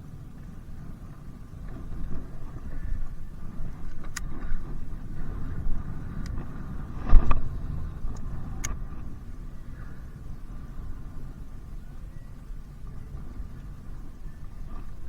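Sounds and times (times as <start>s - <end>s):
wind buffeting microphone: 0.0s - 15.0s
sharp clicks: 3.8s - 4.5s, 8.1s - 8.8s.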